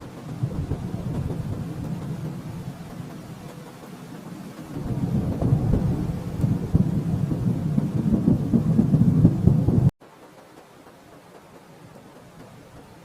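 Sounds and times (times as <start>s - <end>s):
thunder rumbling: 0.0s - 9.9s.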